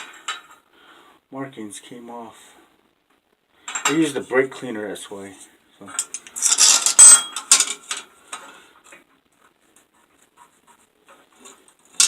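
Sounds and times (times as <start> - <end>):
metal parts clattering and clinking: 3.7 - 4.0, 5.9 - 8.1.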